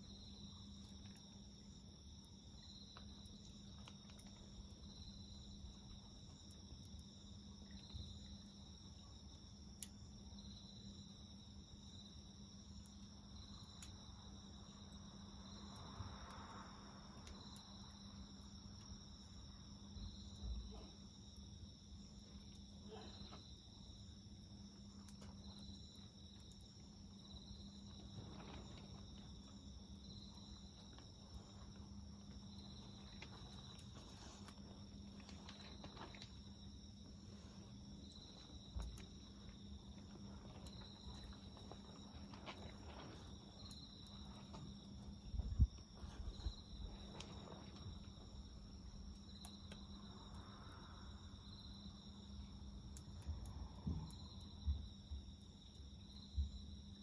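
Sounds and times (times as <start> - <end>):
insects chirring: 0.0 - 57.0
wood fire crackling: 0.0 - 57.0.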